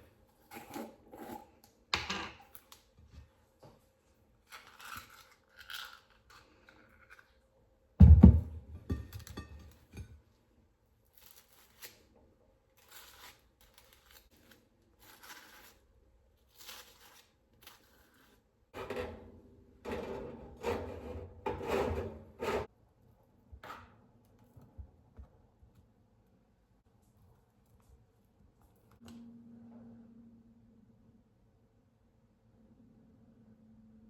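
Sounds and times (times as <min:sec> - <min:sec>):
food scraping and rubbing: 0:04.4 - 0:07.4, 0:11.1 - 0:22.7.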